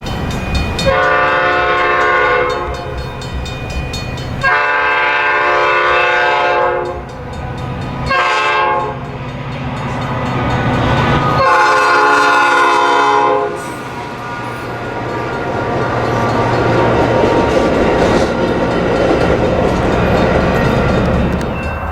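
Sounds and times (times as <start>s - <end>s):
train rumble: 0.0s - 21.9s
train air horn blasts: 0.9s - 3.0s, 4.4s - 7.0s, 8.1s - 9.0s, 11.2s - 14.8s.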